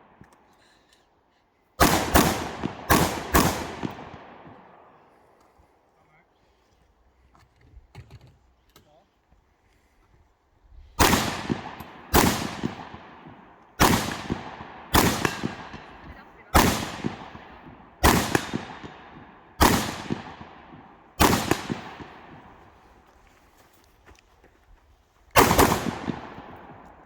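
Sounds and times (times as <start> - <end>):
rifle shots with echo: 1.8 - 5.1, 11.0 - 22.9, 25.4 - 27.0.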